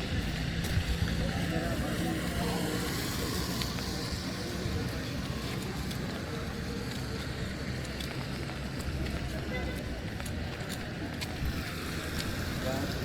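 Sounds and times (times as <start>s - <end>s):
traffic hum: 0.0s - 13.0s.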